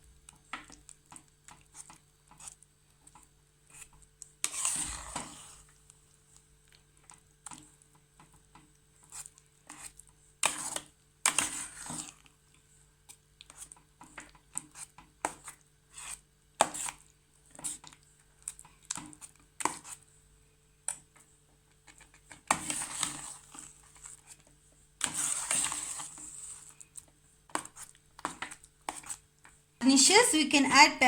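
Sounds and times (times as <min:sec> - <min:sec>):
utensil scraping in a pan: 0:03.7 - 0:05.8, 0:09.0 - 0:12.3, 0:13.4 - 0:17.9, 0:18.9 - 0:20.1, 0:22.0 - 0:29.3.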